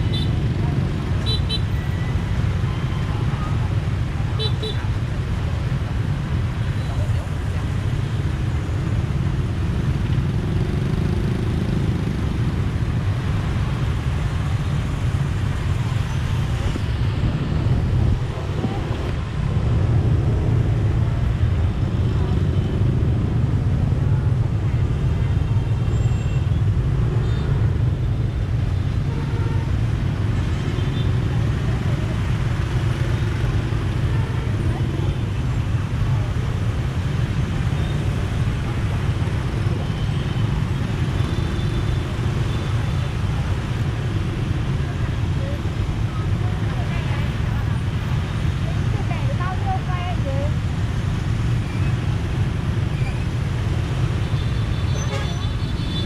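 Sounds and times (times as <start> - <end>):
city traffic: 0.0 - 56.0.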